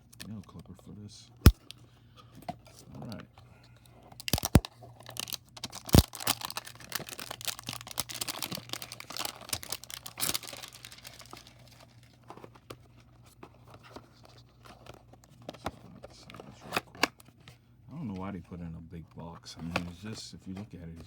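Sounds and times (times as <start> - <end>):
wrapper tearing and crinkling: 4.2 - 12.0
sharp snap: 4.3 - 4.6.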